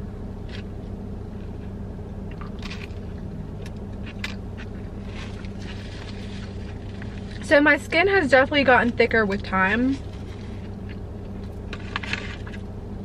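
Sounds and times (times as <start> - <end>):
steady low hum: 0.0 - 13.0
person chewing food: 0.4 - 7.4, 10.0 - 12.6.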